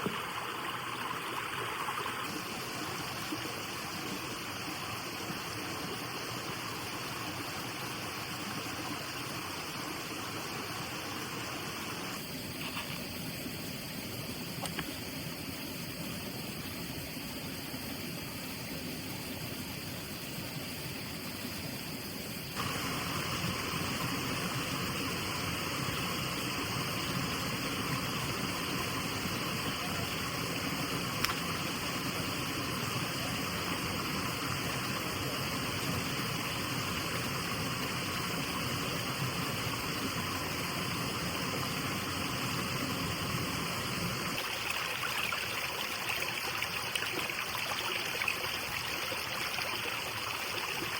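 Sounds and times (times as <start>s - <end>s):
stream water rushing: 0.0s - 12.3s, 22.6s - 50.9s.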